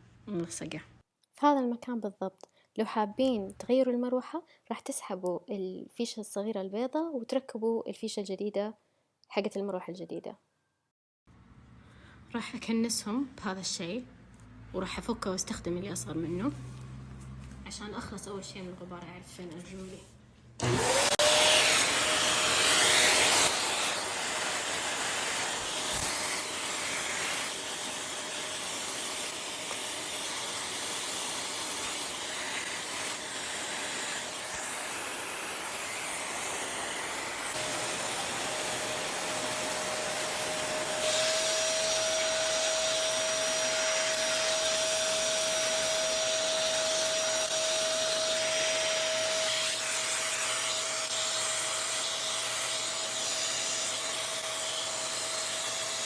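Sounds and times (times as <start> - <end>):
small vacuum cleaner motor: 20.6 - 56.0.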